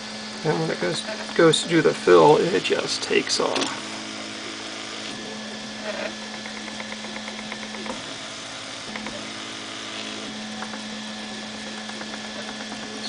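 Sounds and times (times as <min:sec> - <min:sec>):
stepper motors humming: 0:00.0 - 0:13.0.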